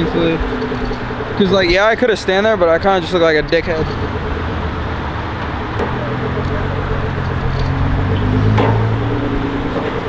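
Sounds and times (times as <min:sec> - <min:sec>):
background din: 0:00.0 - 0:10.0
car engine humming: 0:00.0 - 0:10.0.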